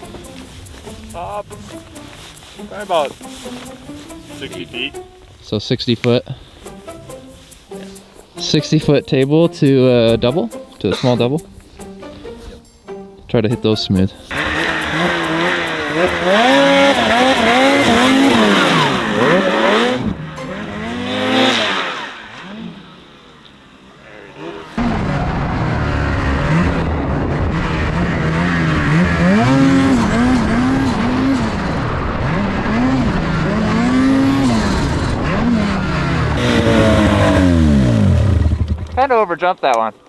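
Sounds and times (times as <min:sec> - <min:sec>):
snowmobile engine revving: 0:14.2 - 0:39.9.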